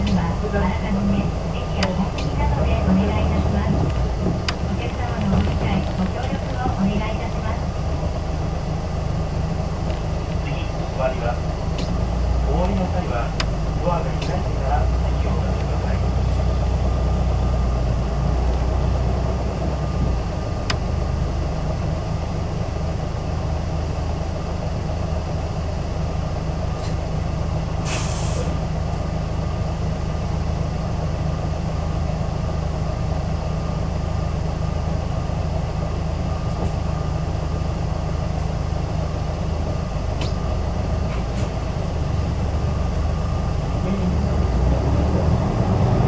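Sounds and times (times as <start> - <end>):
bus engine drone: 0.0 - 46.0
air brake hiss: 27.8 - 28.6.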